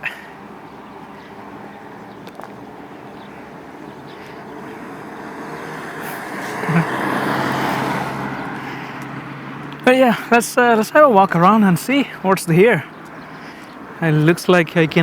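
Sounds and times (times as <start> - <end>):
car driving past: 0.9 - 10.5.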